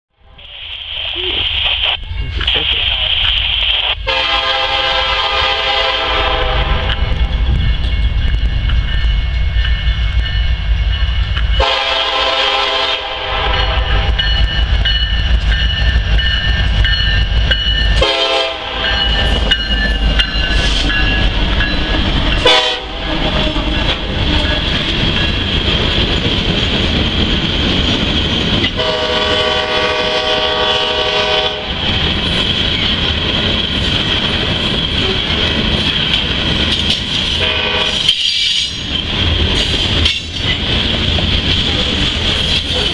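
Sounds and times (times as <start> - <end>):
locomotive air horn: 4.0 - 7.2, 11.6 - 14.1, 18.0 - 19.0, 22.4 - 24.5, 28.8 - 31.7, 37.4 - 38.2.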